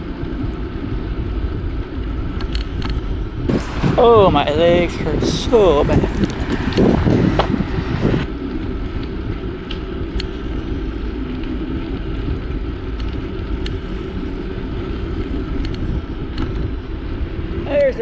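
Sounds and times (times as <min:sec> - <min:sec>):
bicycle tyre rumble: 0:03.5 - 0:08.3
wind rushing: 0:03.5 - 0:08.3.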